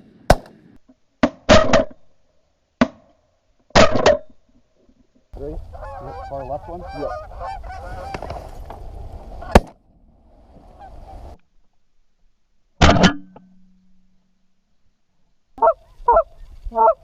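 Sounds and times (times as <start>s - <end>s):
geese honking: 5.4s - 8.6s, 15.6s - 17.0s.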